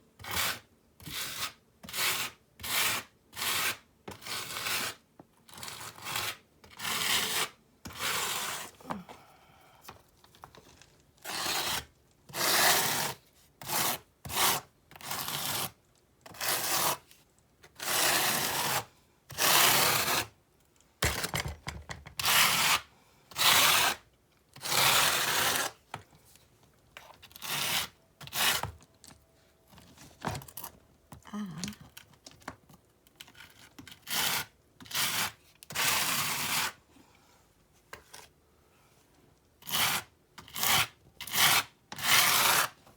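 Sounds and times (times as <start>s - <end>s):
tool scraping mortar on rock: 0.2s - 9.0s, 10.4s - 17.1s, 17.7s - 20.4s, 22.2s - 25.9s, 27.0s - 28.9s, 33.3s - 36.8s, 39.6s - 42.8s.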